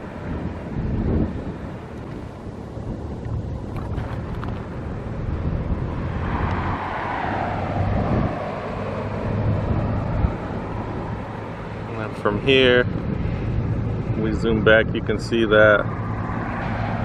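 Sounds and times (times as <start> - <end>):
wind buffeting microphone: 0.0 - 17.0
vehicle passing by: 3.5 - 17.0.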